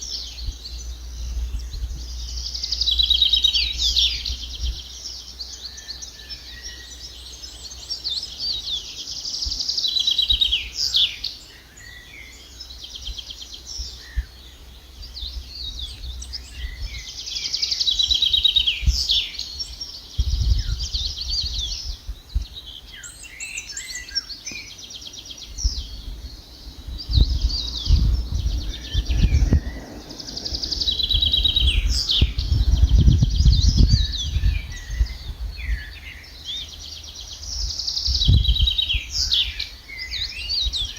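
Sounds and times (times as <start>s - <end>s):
songbird singing trills: 0.0s - 40.9s
low rumble: 25.4s - 36.4s.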